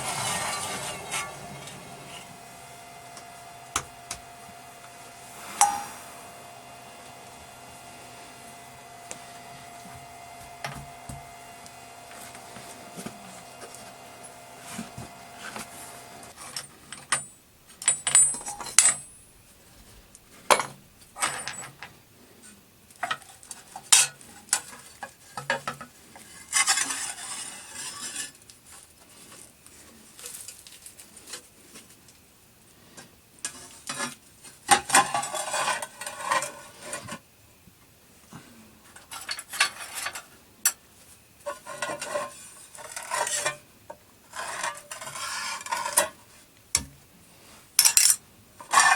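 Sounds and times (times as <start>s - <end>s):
metal scraping: 0.0s - 21.7s, 41.4s - 43.6s, 44.3s - 46.2s
faint steady hum: 0.0s - 48.9s
metal tools clinking: 16.4s - 19.4s, 20.5s - 21.9s.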